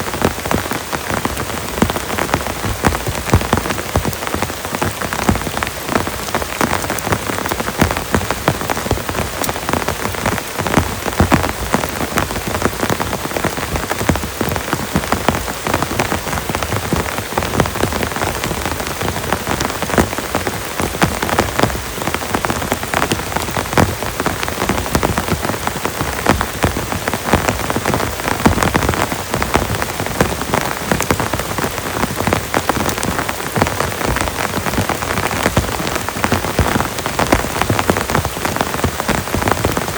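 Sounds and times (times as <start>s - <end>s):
heavy rain falling: 0.0s - 39.9s
raindrops striking surface: 0.0s - 39.9s.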